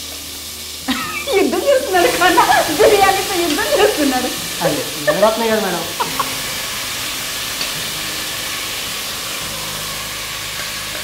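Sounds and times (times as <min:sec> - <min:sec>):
chicken sizzling in hot fat: 0:00.0 - 0:11.0.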